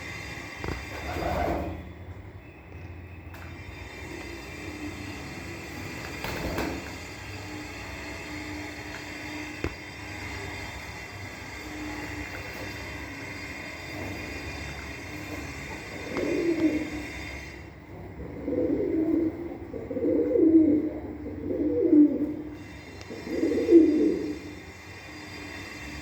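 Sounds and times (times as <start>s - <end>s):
pigeons cooing: 0.8s - 1.9s, 15.1s - 24.6s.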